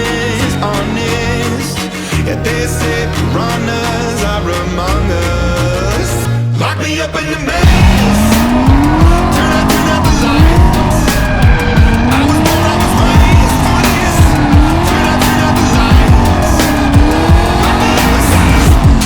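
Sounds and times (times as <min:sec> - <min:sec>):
car engine revving: 0:06.9 - 0:19.0
tyres squealing: 0:07.6 - 0:19.0.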